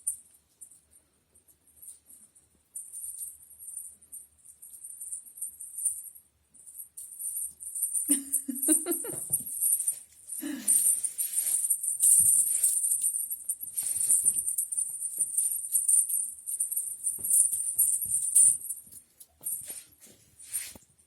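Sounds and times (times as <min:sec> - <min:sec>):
little bells jingling: 0:07.0 - 0:20.7.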